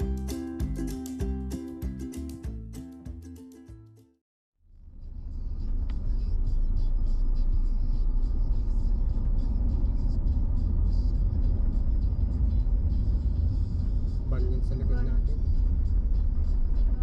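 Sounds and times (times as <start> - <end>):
car engine and road noise: 4.7 - 17.0.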